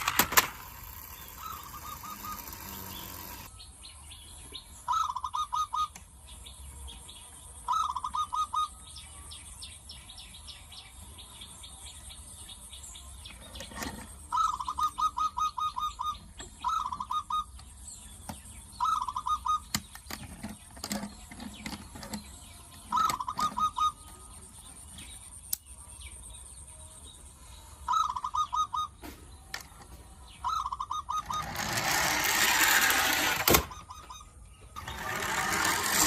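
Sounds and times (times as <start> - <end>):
bird chirping rapidly: 0.0 - 6.4, 7.6 - 9.1, 12.2 - 25.5, 27.9 - 29.1, 30.4 - 36.0.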